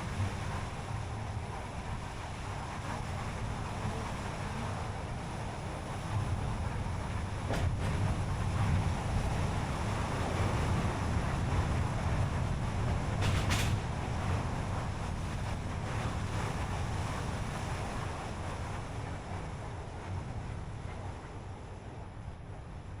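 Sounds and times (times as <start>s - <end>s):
tyre and engine rumble: 5.2s - 8.4s.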